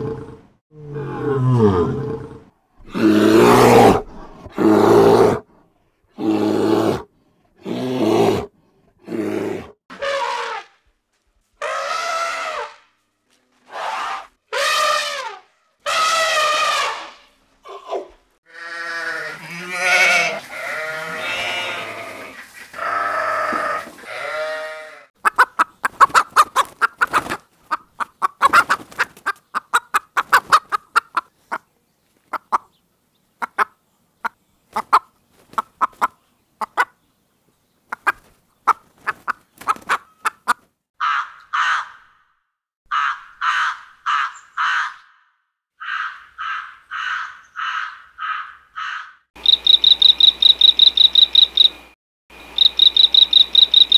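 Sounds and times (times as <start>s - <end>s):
elephant trumpeting: 9.9s - 10.8s, 13.7s - 17.2s
chickens clucking: 25.2s - 32.7s, 33.4s - 37.0s, 37.9s - 40.7s
crows cawing: 41.0s - 42.3s, 42.9s - 49.2s.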